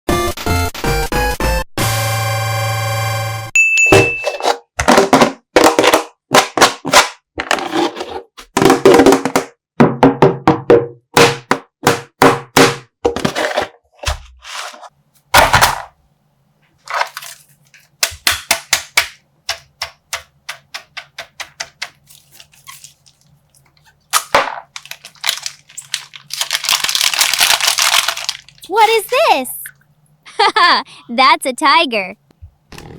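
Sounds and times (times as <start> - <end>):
plastic bag crinkling: 22.0 - 29.2
slime bag crackling pops: 24.2 - 28.6.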